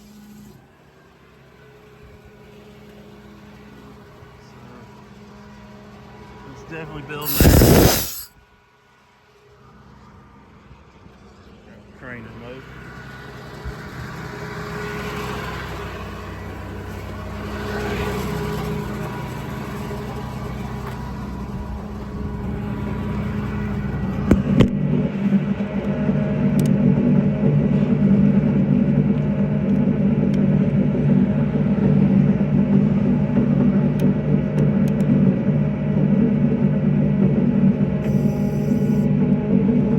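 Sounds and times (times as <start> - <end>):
sharp clicks: 7.2 - 8.3
diesel engine running: 12.5 - 39.9.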